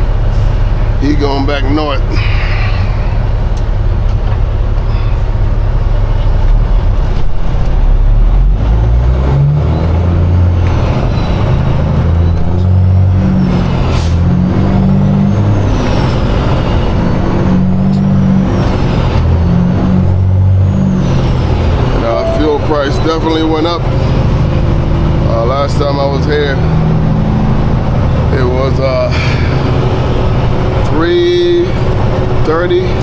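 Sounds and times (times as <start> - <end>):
diesel truck engine revving: 0.0 - 33.0.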